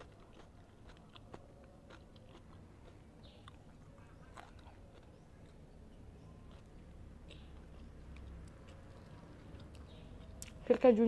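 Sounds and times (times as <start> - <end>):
faint chewing: 0.0 - 11.0.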